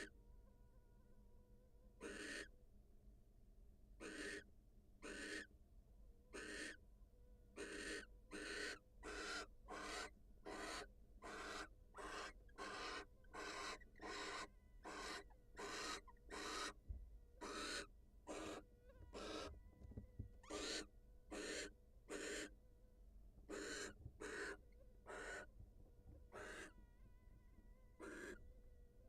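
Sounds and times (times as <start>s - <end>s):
owl raspy hissing calls: 2.0s - 2.5s, 4.0s - 5.5s, 6.3s - 6.8s, 7.6s - 16.8s, 17.4s - 18.6s, 19.2s - 19.5s, 20.5s - 22.6s, 23.5s - 25.5s, 26.3s - 26.7s, 28.0s - 28.4s.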